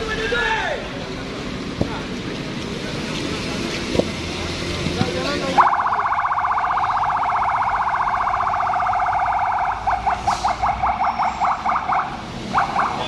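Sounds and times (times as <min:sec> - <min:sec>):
emergency vehicle siren: 0:05.4 - 0:13.0.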